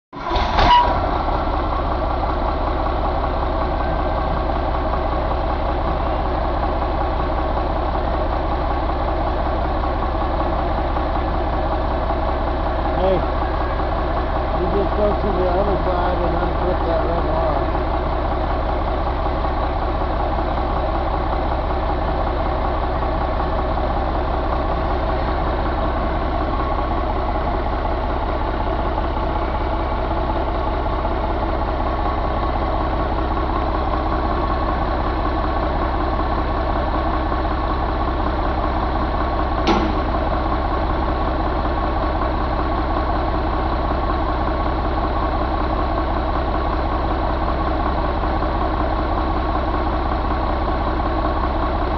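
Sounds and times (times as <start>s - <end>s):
engine idling: 0.1s - 51.9s
sharp click: 39.6s - 40.2s.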